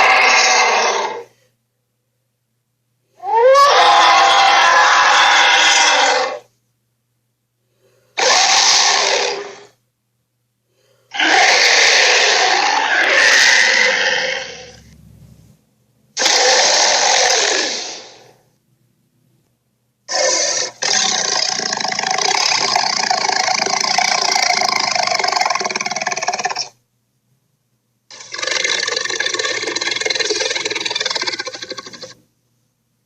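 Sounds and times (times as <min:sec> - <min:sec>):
harsh dinosaur roars: 0:00.0 - 0:01.3, 0:03.2 - 0:06.5, 0:08.2 - 0:09.7, 0:11.1 - 0:15.2, 0:16.2 - 0:18.3, 0:20.1 - 0:26.7.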